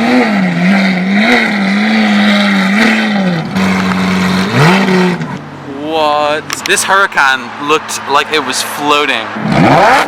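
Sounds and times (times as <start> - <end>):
sports car engine revving: 0.0 - 5.7, 9.3 - 10.0.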